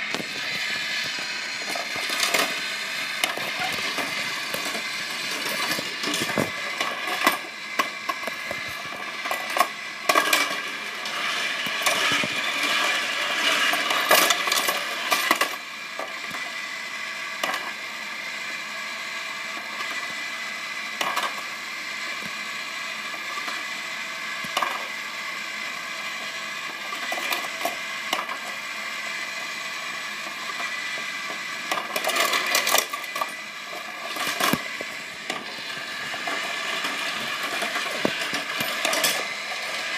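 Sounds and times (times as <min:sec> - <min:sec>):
steady high hum: 0:00.0 - 0:14.0, 0:27.9 - 0:39.9
toy cars clattering on plastic track: 0:00.0 - 0:16.6, 0:17.3 - 0:17.8, 0:19.5 - 0:25.0, 0:25.8 - 0:39.9.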